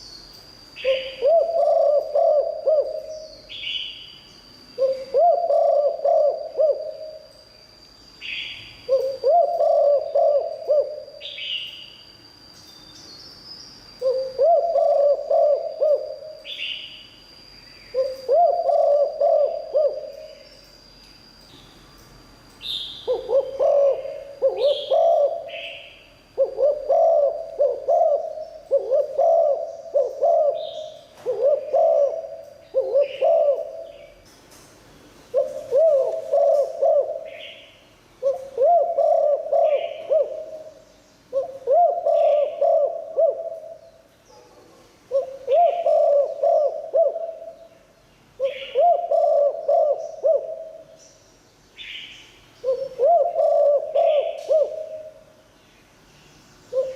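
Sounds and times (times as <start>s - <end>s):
faint high whine: 0.0s - 56.9s
dove cooing: 0.8s - 3.9s, 4.8s - 7.3s, 8.2s - 11.5s, 14.0s - 16.7s, 17.9s - 20.4s, 23.0s - 34.2s, 35.3s - 47.7s, 48.4s - 51.0s, 52.6s - 55.2s.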